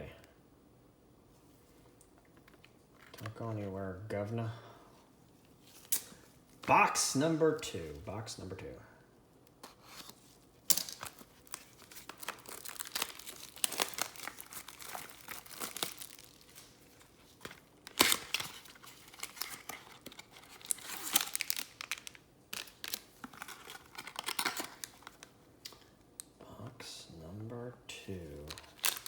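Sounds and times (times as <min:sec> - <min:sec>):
packaging crinkling and tearing: 0:09.8 - 0:25.9, 0:28.4 - 0:29.0.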